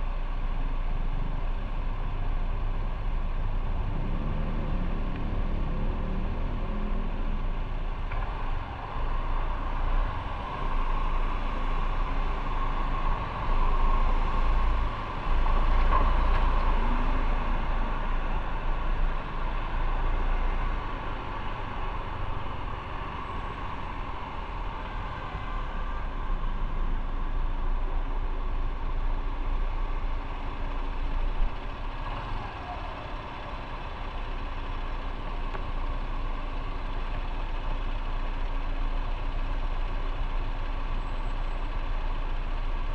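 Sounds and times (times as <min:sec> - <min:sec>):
motorcycle engine and road noise: 0:00.0 - 0:42.9.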